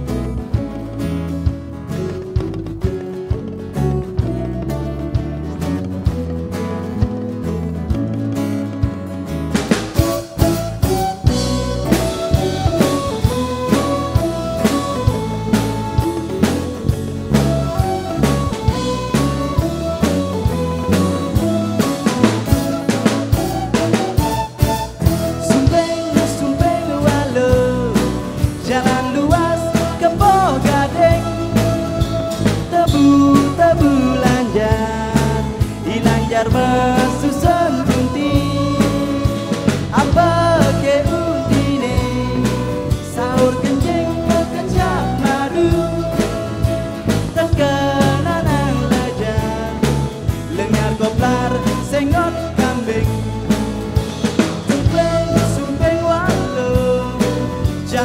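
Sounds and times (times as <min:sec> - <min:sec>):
bass line: 0:00.0 - 0:58.0
drums keeping a beat: 0:00.0 - 0:58.0
sliding lead melody: 0:00.0 - 0:58.0.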